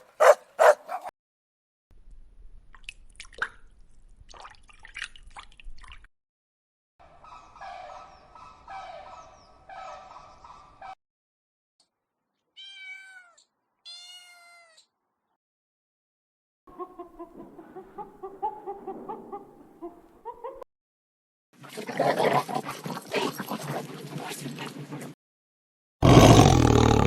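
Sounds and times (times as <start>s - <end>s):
cat meowing: 12.6s - 14.9s.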